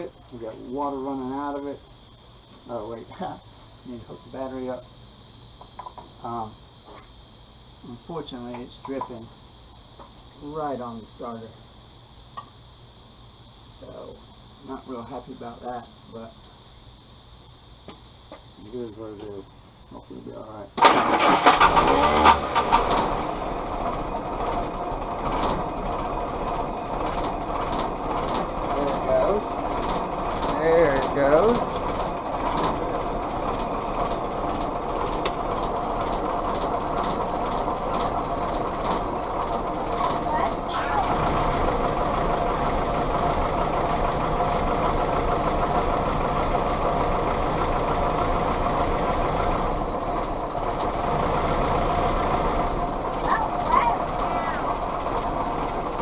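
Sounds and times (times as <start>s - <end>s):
engine turning over: 20.8s - 56.0s.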